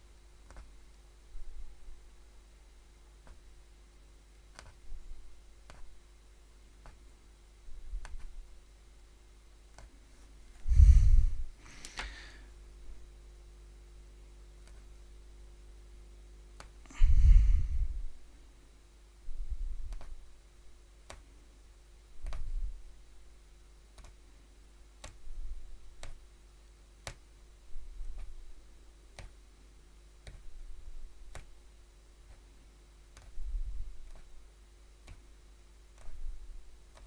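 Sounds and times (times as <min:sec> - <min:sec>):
needle punching through fabric: 0:00.4 - 0:00.8, 0:04.5 - 0:06.0, 0:06.8 - 0:07.1, 0:07.7 - 0:08.5, 0:09.7 - 0:10.7, 0:22.2 - 0:22.8, 0:25.0 - 0:26.2, 0:27.0 - 0:28.5, 0:30.2 - 0:31.6, 0:33.1 - 0:34.4, 0:36.0 - 0:37.0.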